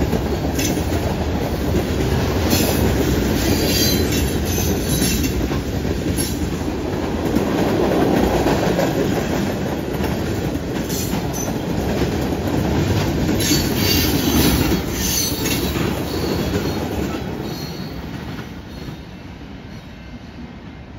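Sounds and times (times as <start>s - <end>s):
train wheel-on-rail rumble: 0.0s - 20.9s
train wheels squealing: 3.4s - 5.4s, 13.4s - 20.3s.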